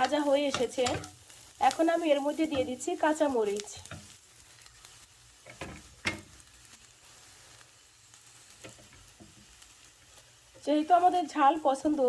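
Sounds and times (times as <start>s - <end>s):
sharp knocks in a pan: 0.0s - 1.2s, 5.4s - 6.4s, 8.6s - 9.4s
onions sizzling in a pan: 0.0s - 12.0s.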